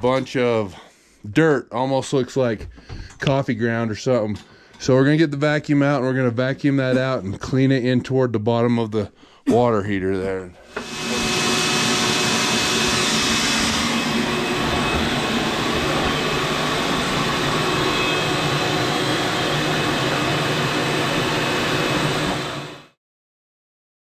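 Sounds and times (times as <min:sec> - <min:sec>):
vacuum cleaner running: 0:10.6 - 0:23.0.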